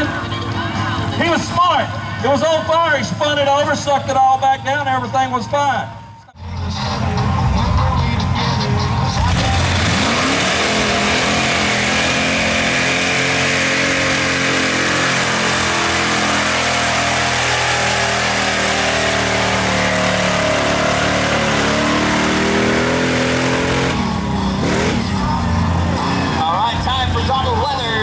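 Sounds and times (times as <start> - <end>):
truck engine revving hard: 6.6 - 28.0.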